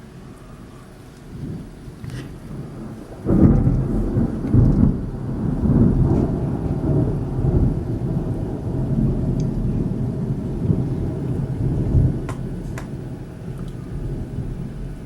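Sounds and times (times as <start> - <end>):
thunderclap with rolling rumble: 1.2 - 15.0.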